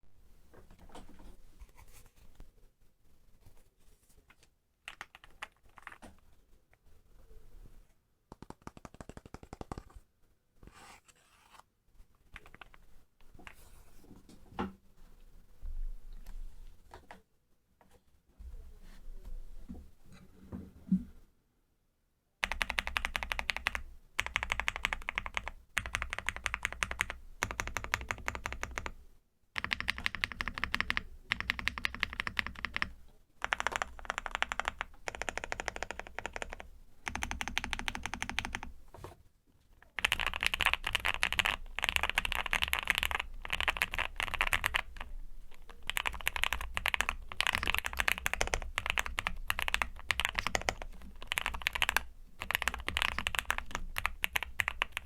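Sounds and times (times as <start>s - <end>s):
fast mechanical keyboard typing: 4.9s - 6.0s, 8.4s - 9.9s, 12.4s - 12.8s, 22.4s - 29.0s, 29.6s - 38.7s, 39.9s - 55.0s.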